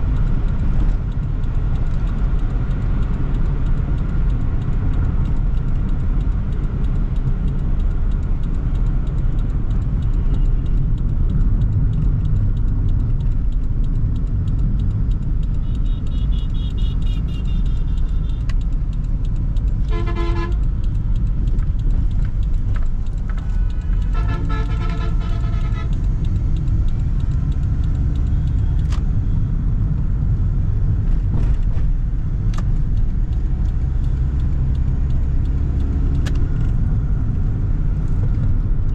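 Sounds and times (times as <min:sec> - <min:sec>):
car engine and road rumble: 0:00.0 - 0:38.9
vehicle horns honking: 0:15.7 - 0:18.4, 0:19.8 - 0:20.6, 0:24.0 - 0:26.0.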